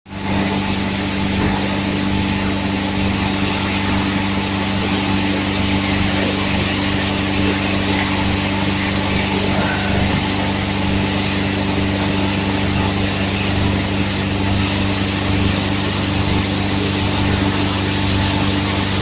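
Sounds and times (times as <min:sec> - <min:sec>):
electric motor hum: 0:00.1 - 0:19.0.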